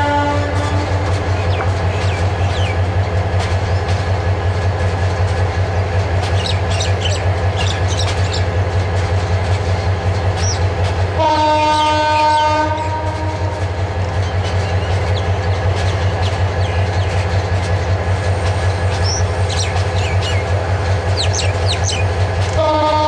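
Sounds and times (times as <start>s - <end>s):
train horn blast: 0.0s - 1.5s, 11.2s - 13.7s, 22.5s - 23.0s
diesel train running past: 0.0s - 23.0s.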